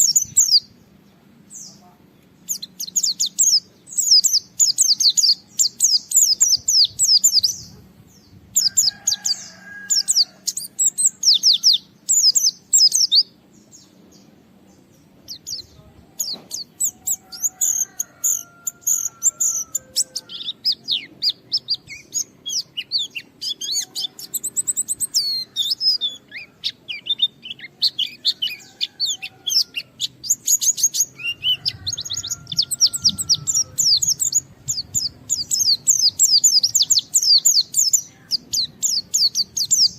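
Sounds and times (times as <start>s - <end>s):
bird chattering trills: 15.3s - 39.9s.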